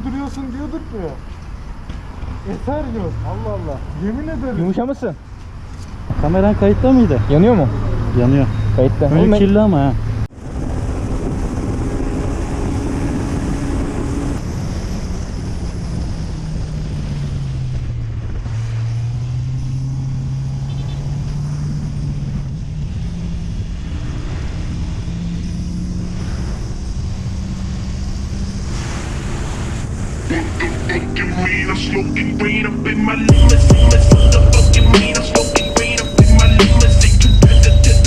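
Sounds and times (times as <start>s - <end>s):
steady rushing noise: 10.0s - 19.2s, 21.8s - 38.0s.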